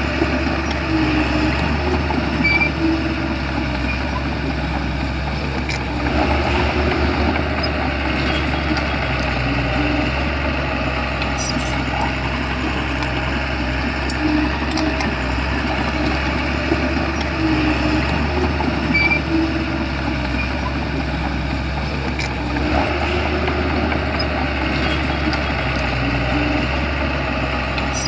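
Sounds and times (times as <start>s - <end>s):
bulldozer diesel engine running: 0.0s - 28.0s
machine clicks and squeaks: 0.2s - 10.3s, 11.2s - 26.8s, 27.7s - 28.0s.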